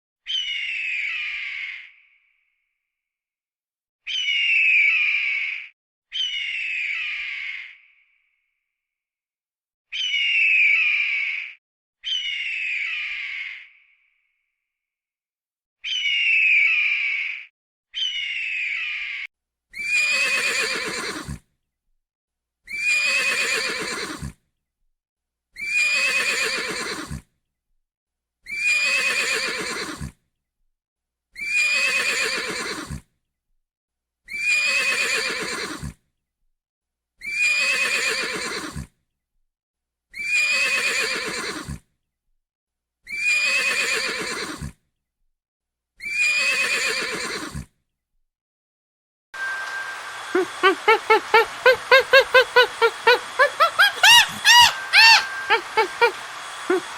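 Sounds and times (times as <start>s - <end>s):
horse whinnying: 19.8s - 21.4s, 22.7s - 24.4s, 25.6s - 27.2s, 28.5s - 30.1s, 31.4s - 33.0s, 34.3s - 36.0s, 37.3s - 38.9s, 40.2s - 41.8s, 43.1s - 44.8s, 46.0s - 47.7s, 50.4s - 56.9s.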